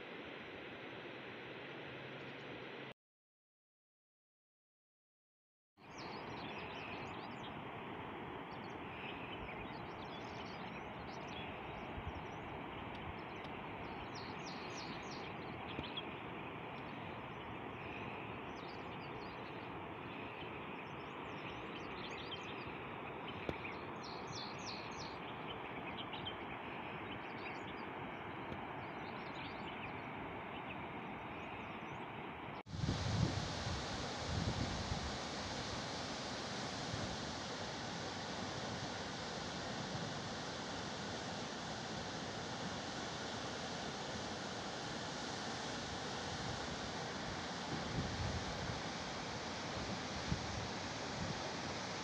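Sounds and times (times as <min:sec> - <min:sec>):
birds chirping: 0:05.9 - 0:07.6, 0:08.4 - 0:32.2.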